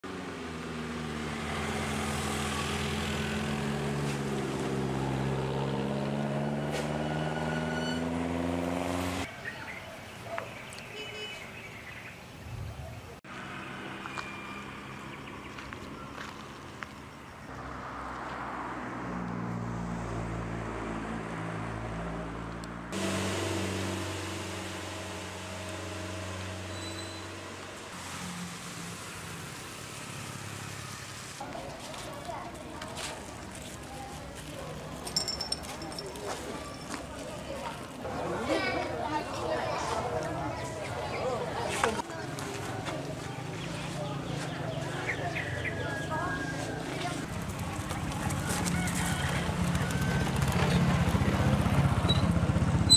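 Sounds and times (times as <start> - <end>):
engine running: 0.0 - 9.3, 19.2 - 31.5, 46.8 - 52.9.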